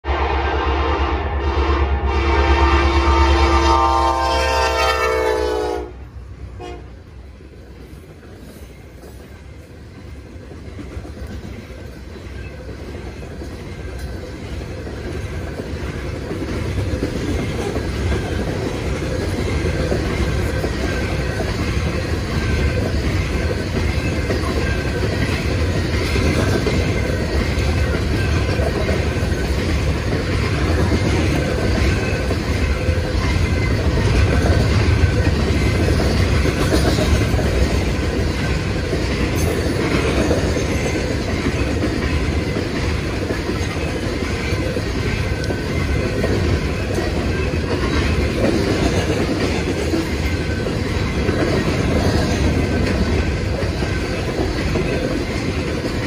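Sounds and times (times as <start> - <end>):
locomotive air horn: 0.0 - 7.0
train cars rumbling on rails: 0.0 - 56.0.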